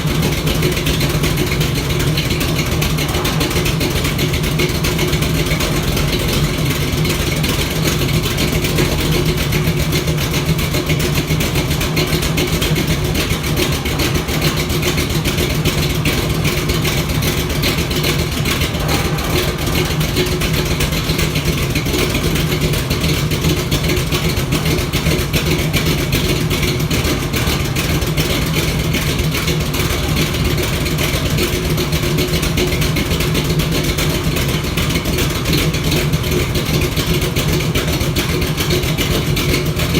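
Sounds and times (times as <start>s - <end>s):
car engine running with exhaust leak: 0.0s - 39.9s.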